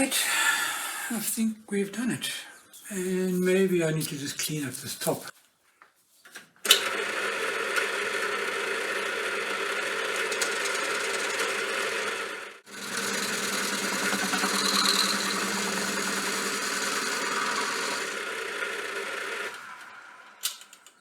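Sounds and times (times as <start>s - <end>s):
lathe machining metal: 12.7s - 20.5s.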